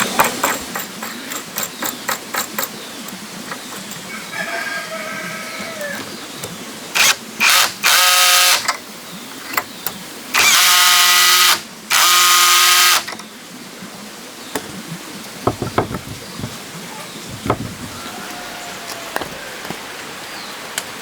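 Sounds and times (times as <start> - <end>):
handling knocks and clicks: 0.0 - 4.2, 14.6 - 18.0
power drill running: 7.0 - 8.7, 10.4 - 13.1.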